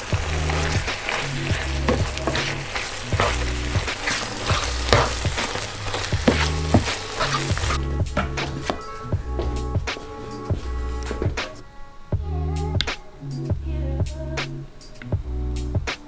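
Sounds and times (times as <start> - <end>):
food sizzling in a pan: 0.0 - 7.8
utensil clicking and scraping: 0.0 - 7.8
background music with bass: 0.0 - 16.0.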